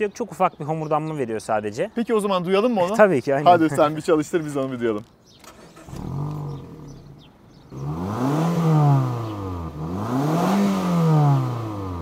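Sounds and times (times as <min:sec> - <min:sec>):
car engine idling and revving: 0:05.4 - 0:12.0.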